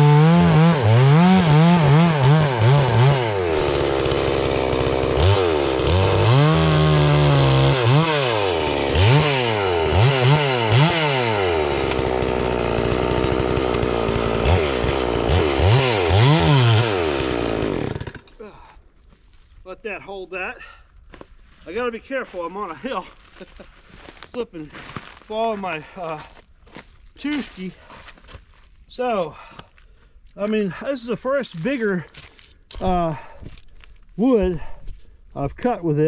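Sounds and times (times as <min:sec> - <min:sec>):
chainsaw cutting log: 0:00.0 - 0:18.4, 0:29.4 - 0:33.0.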